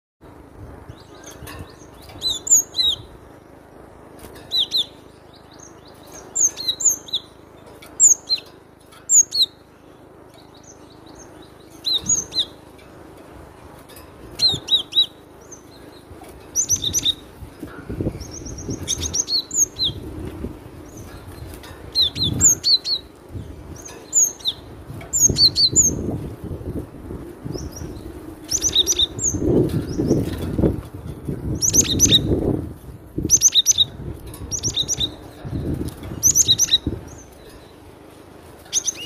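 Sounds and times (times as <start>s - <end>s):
buzzy bird trill: 0.6s - 39.0s
bird singing whistled notes: 0.9s - 3.5s, 4.5s - 12.6s, 14.4s - 17.3s, 18.0s - 20.0s, 21.9s - 26.2s, 27.5s - 30.4s, 31.5s - 32.5s, 33.2s - 35.4s, 36.1s - 37.8s, 38.7s - 39.0s.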